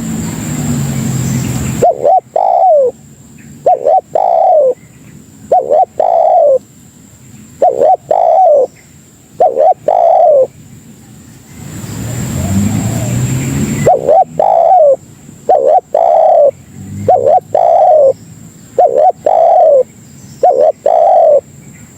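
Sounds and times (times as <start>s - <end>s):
dove cooing: 1.7s - 6.7s, 7.6s - 8.7s, 9.4s - 10.6s, 12.1s - 21.6s.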